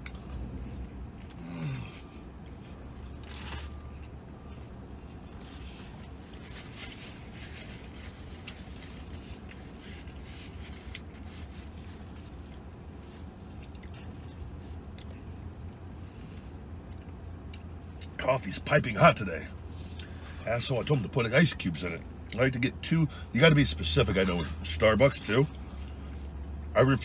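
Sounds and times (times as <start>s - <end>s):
man chewing: 0.0s - 18.2s, 25.4s - 26.7s
steady low hum: 0.0s - 27.0s
paper wrapper crackling: 3.2s - 3.9s.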